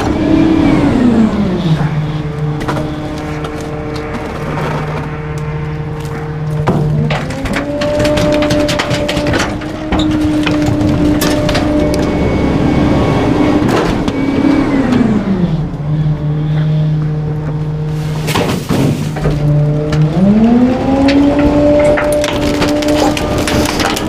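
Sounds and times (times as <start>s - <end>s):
garbage truck engine revving: 0.0s - 24.0s
metal clanks: 6.1s - 12.3s.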